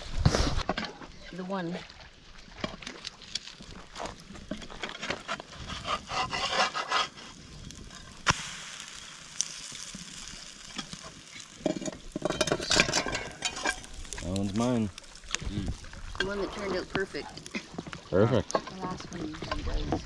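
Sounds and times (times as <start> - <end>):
spatula scraping a pan: 4.9 - 8.2.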